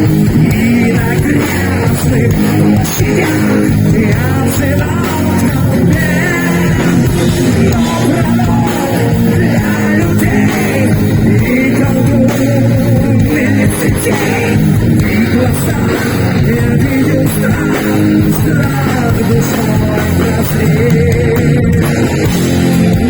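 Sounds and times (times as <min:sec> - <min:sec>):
heavy metal band playing: 0:00.0 - 0:23.0
wavering melody line: 0:02.6 - 0:19.2.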